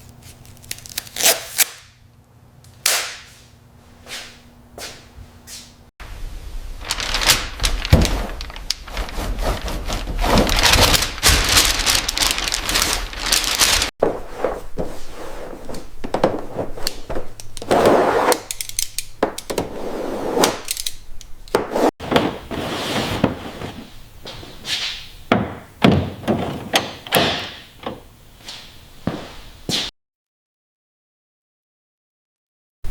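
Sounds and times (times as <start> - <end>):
tools knocking and clunking: 18.5 - 19.8, 25.3 - 28.1.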